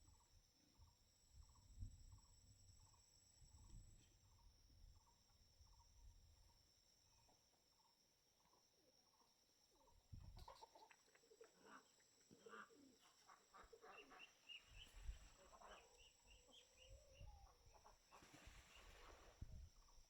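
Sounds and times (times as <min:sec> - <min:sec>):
faint bird calls: 0:10.2 - 0:20.0.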